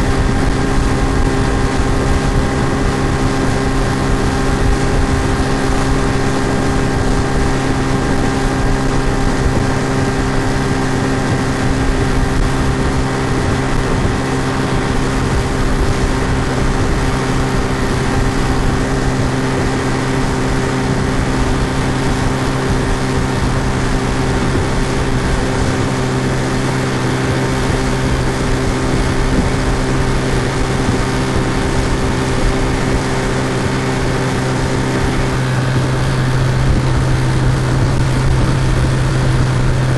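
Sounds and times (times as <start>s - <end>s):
outboard motor droning: 0.0s - 39.9s.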